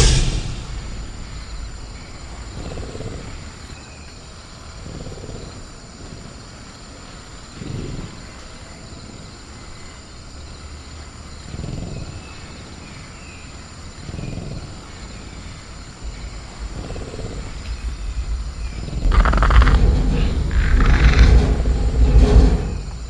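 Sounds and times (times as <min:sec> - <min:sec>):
low rumble: 0:00.0 - 0:04.3, 0:16.0 - 0:23.0
high cricket drone: 0:00.0 - 0:23.0
faint chirps: 0:11.8 - 0:23.0
low growls: 0:16.0 - 0:23.0.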